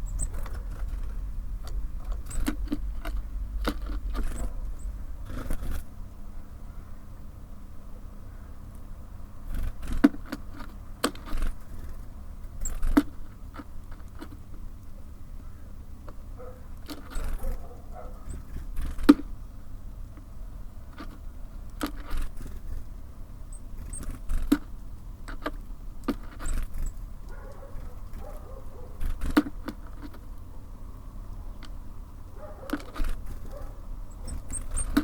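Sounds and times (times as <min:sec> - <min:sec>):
faint bird chirps: 0:00.0 - 0:01.0, 0:32.5 - 0:35.0
birds pecking on feeder: 0:00.0 - 0:06.1, 0:09.4 - 0:14.9, 0:15.5 - 0:19.5, 0:20.1 - 0:35.0
low rumble: 0:00.0 - 0:09.8.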